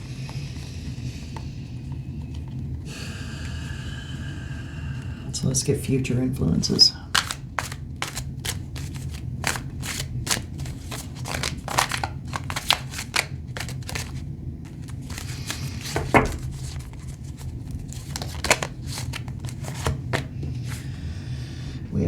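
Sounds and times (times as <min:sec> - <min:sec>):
steady low hum: 0:00.0 - 0:22.0
cards shuffling: 0:07.0 - 0:20.9.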